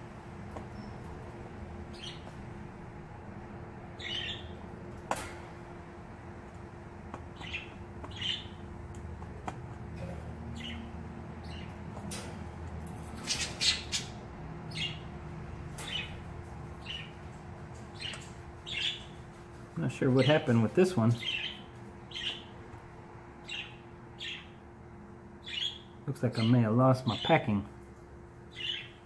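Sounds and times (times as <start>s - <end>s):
bird calling: 4.0s - 4.6s.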